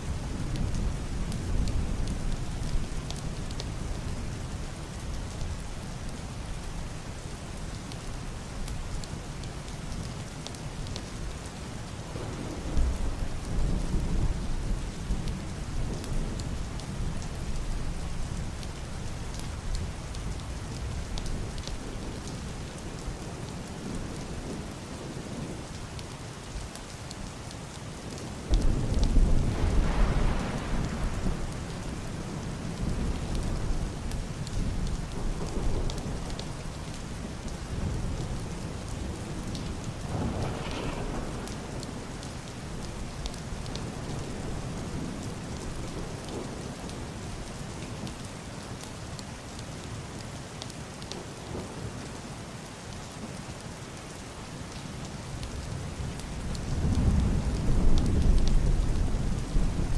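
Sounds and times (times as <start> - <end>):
heavy rain on roof and window: 0.0 - 59.9
thunder rumbling: 28.5 - 46.7.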